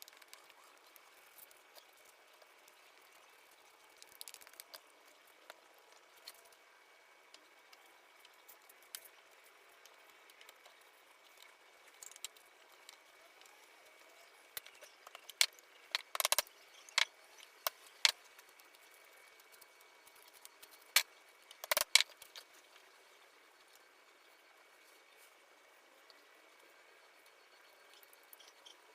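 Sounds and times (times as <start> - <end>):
wooden parts knocking and clicking: 14.6 - 18.2, 20.6 - 22.4.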